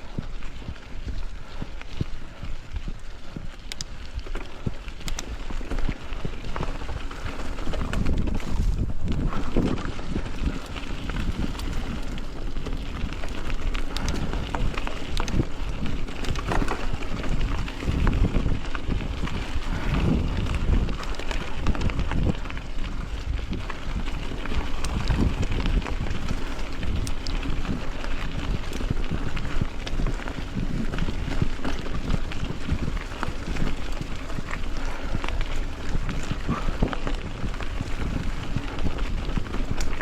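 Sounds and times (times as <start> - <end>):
bicycle clicks and knocks: 0.0 - 40.0
wind buffeting microphone: 0.0 - 40.0.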